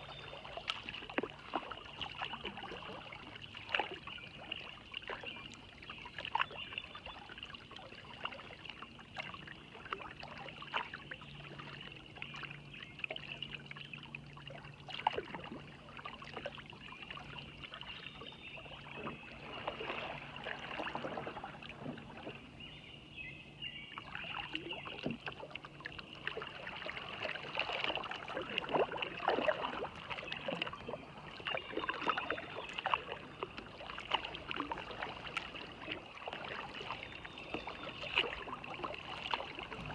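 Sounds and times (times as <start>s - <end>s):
paddle splashing in water: 0.0s - 22.9s, 23.9s - 39.9s
water dripping off paddle: 0.5s - 4.0s, 24.0s - 39.9s.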